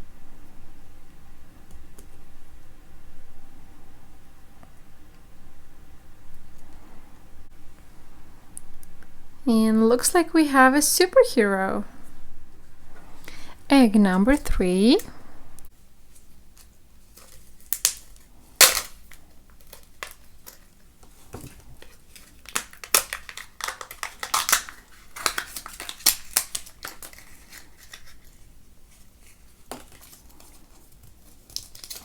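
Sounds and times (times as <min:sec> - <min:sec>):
wrapper crinkling and tearing: 0:16.1 - 0:32.0
plastic egg clicks and snaps: 0:16.5 - 0:20.7, 0:21.8 - 0:28.3.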